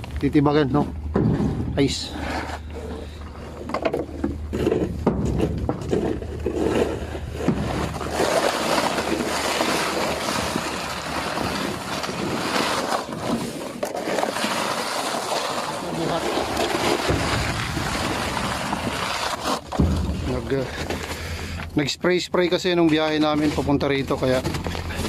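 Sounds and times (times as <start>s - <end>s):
tool chipping hard ice: 4.6s - 21.6s.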